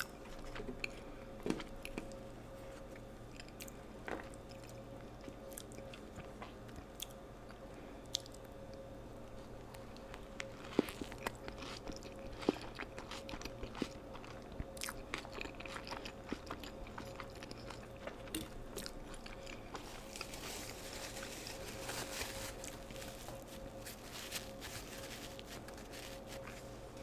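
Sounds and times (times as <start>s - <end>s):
faint steady hum: 0.0s - 27.0s
crunchy bites and chewing: 10.4s - 26.6s.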